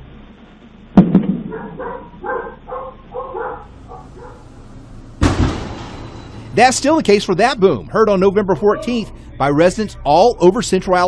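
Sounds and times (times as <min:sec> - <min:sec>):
loud boom: 0:00.9 - 0:01.6, 0:05.2 - 0:06.8
dog barking: 0:01.4 - 0:04.5, 0:08.6 - 0:09.2.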